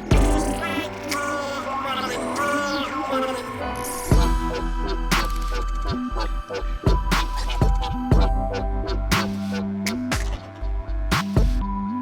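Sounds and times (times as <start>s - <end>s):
heavy bass hit: 0.0s - 1.1s
held synth notes: 0.0s - 11.2s
electronic dance music: 0.0s - 11.6s.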